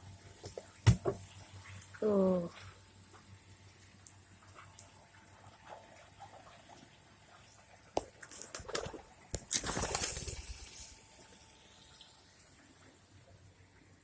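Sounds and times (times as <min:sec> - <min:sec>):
pigeons flapping wings: 0:08.4 - 0:10.8.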